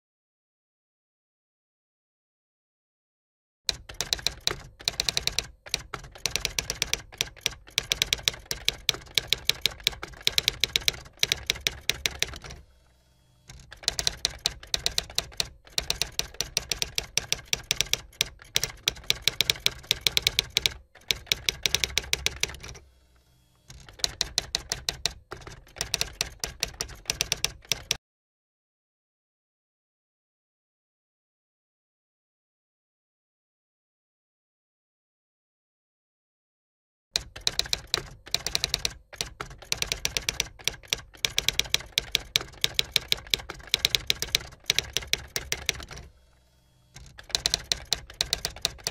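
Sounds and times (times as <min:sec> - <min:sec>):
rapid keyboard key clicks: 0:03.7 - 0:12.6, 0:13.5 - 0:22.8, 0:23.7 - 0:28.0, 0:37.2 - 0:46.1, 0:47.0 - 0:48.9.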